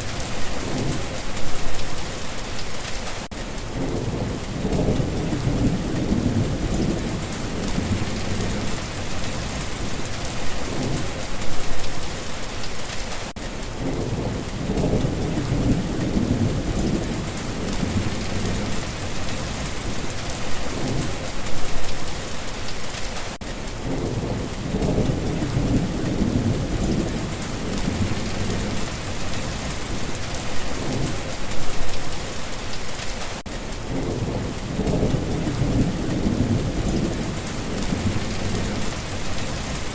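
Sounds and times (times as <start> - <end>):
heavy rainfall: 0.0 - 39.9
thunder rolling: 3.7 - 11.9, 13.8 - 21.5, 23.8 - 31.8, 33.9 - 39.9.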